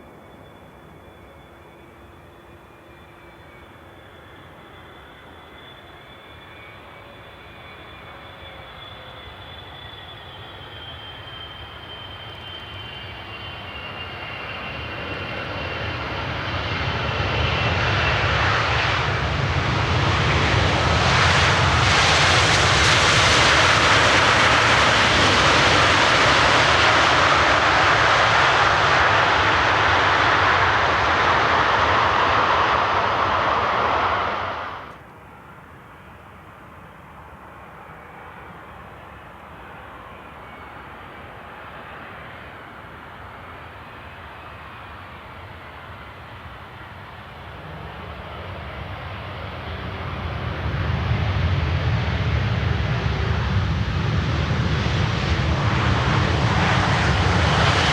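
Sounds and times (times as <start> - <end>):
high engine whine falling in pitch: 0.0 - 35.0
jet airliner roar: 0.0 - 57.9.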